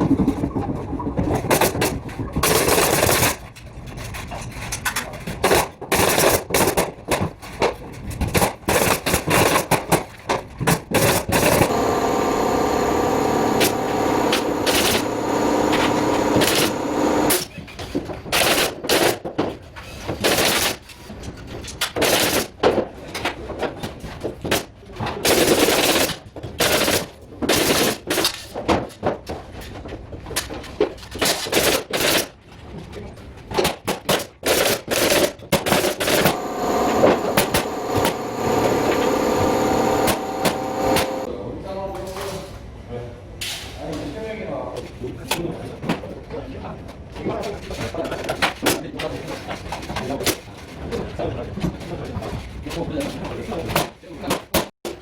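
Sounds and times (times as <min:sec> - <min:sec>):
pneumatic nail gun firing: 0:11.1 - 0:17.5, 0:34.1 - 0:41.3
steady hum: 0:11.6 - 0:17.4, 0:36.2 - 0:41.3.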